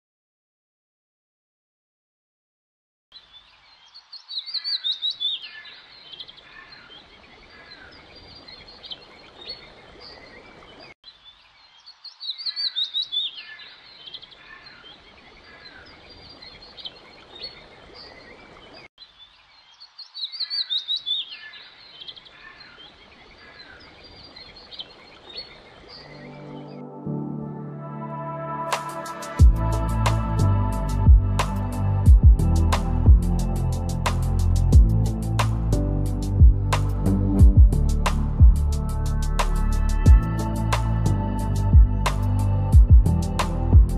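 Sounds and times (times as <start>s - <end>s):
faint outdoor hiss: 3.1s - 26.8s
birds chirping and trilling: 3.1s - 26.9s.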